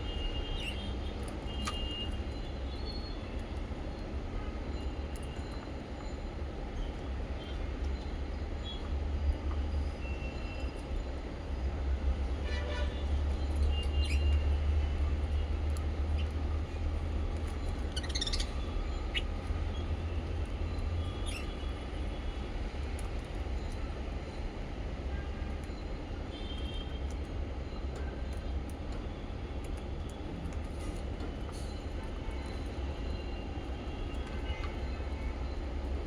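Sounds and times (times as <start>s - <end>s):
parrots chirping: 17.7s - 19.4s.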